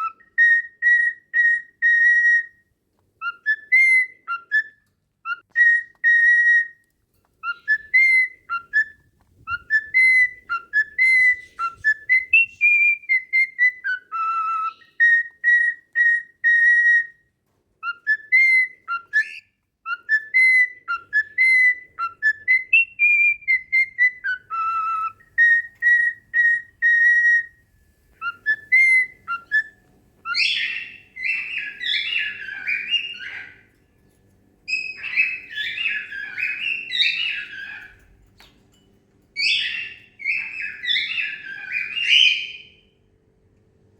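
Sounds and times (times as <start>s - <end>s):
bird chatter: 7.4s - 13.8s, 24.2s - 33.8s, 34.7s - 38.6s
whistled tune: 7.4s - 17.2s, 28.2s - 33.4s.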